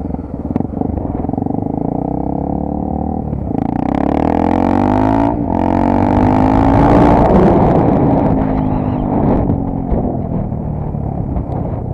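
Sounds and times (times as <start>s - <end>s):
motorcycle engine running: 0.0s - 11.9s
wind on microphone: 4.2s - 11.9s.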